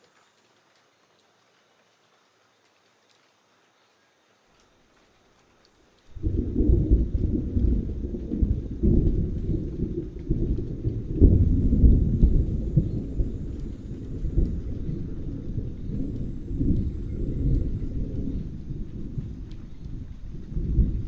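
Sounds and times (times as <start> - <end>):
faint rain patter: 0.0 - 21.0
rolling thunder: 6.1 - 21.0.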